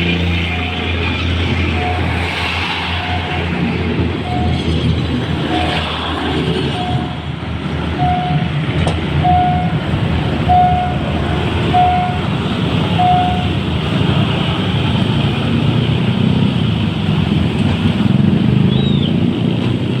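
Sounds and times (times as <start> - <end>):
diesel train engine rumbling: 0.0 - 20.0
short electronic beeps: 4.2 - 4.7, 6.7 - 7.2, 8.0 - 8.5, 10.5 - 11.0.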